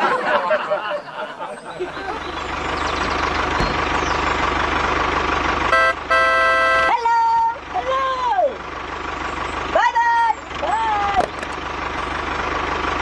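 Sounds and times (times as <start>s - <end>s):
tractor engine running: 0.0s - 13.0s
tractor horn blasts: 5.6s - 7.5s.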